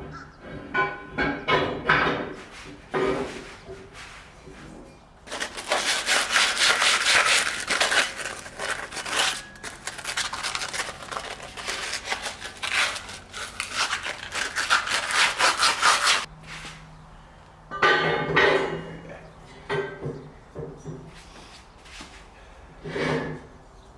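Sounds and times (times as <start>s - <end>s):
hand tool rasping: 5.3s - 16.3s.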